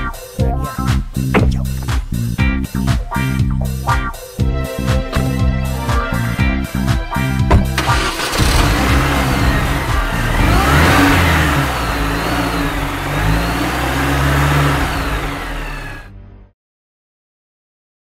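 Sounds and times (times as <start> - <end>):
car engine revving: 7.5 - 16.1.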